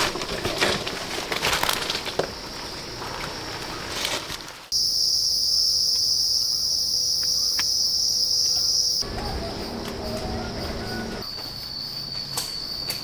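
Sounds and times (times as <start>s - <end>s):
high-pitched insects shrilling: 4.8s - 13.0s.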